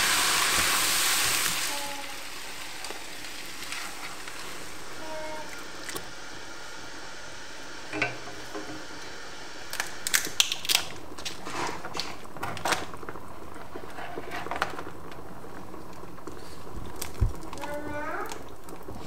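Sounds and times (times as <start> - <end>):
lobster shell cracking: 9.7 - 12.9.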